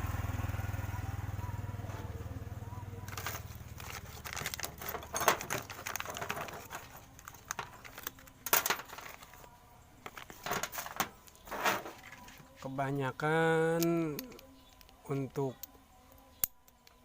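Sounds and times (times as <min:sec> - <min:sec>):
metal parts clinking: 0:03.1 - 0:12.4.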